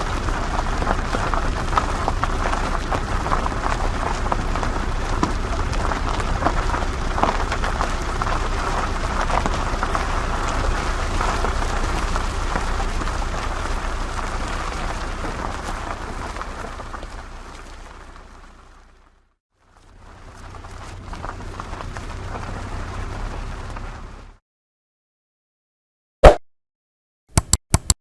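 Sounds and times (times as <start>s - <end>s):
dense crackling noise: 0.0s - 19.1s
car driving over rough ground: 0.0s - 24.4s.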